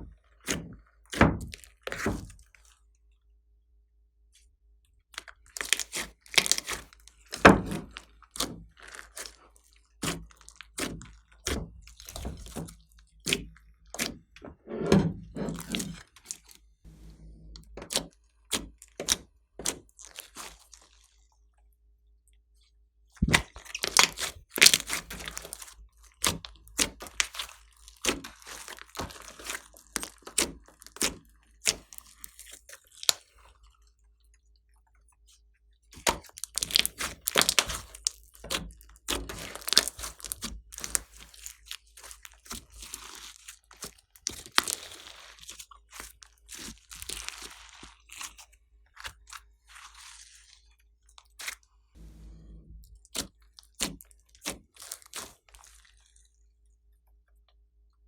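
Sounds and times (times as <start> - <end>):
slime crackling and popping: 23.2 - 33.2, 36.0 - 43.4, 44.2 - 45.2.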